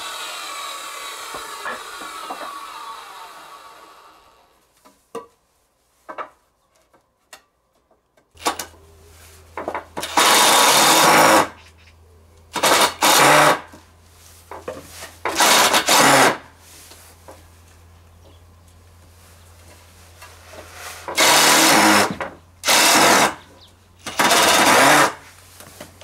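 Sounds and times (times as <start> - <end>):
loud tool bursts: 0.0 - 4.4, 10.0 - 11.6, 12.5 - 13.7, 15.3 - 16.5, 20.9 - 25.3
power tool motor humming: 0.0 - 4.4, 10.0 - 11.5, 12.6 - 13.6, 15.3 - 16.4, 21.1 - 23.4, 24.0 - 25.2.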